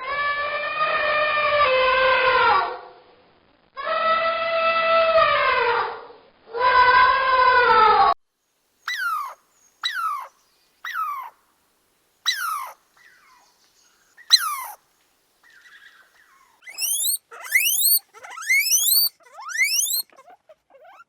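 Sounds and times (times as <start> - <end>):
animal rising squeals: 16.6 - 21.0
animal falling cries: 16.7 - 20.2.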